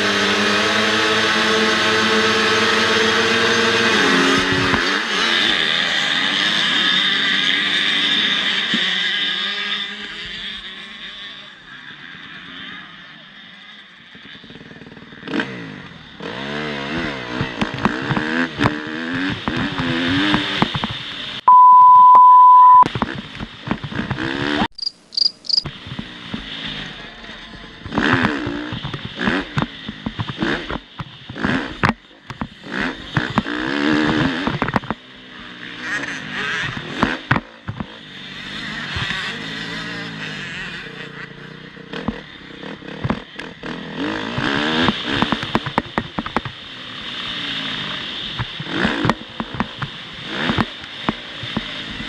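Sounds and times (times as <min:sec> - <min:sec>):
motocross bike engines revving: 0:00.0 - 0:21.6, 0:22.7 - 0:52.0
loud steady beep: 0:21.5 - 0:22.9
short high beeps: 0:21.5 - 0:22.9.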